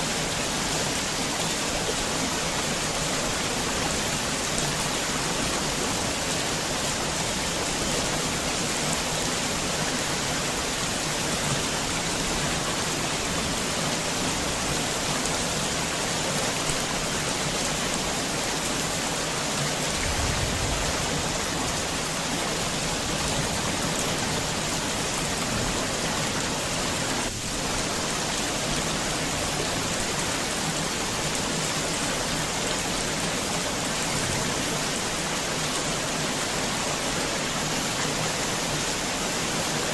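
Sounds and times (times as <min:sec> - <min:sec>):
heavy rain falling: 0:00.0 - 0:39.9
low rumble: 0:20.0 - 0:21.5.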